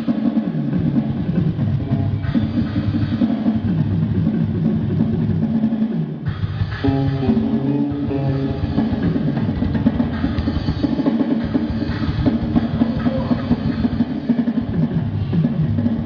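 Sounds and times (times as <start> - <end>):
electronic drum kit playing: 0.0 - 16.0
bass and guitar notes: 6.2 - 10.7.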